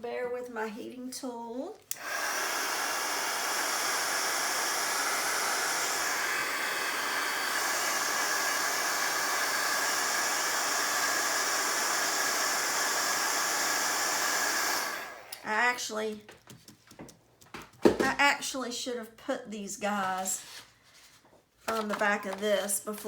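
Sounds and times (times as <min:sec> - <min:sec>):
heat tool blowing hot air: 0:01.9 - 0:15.6.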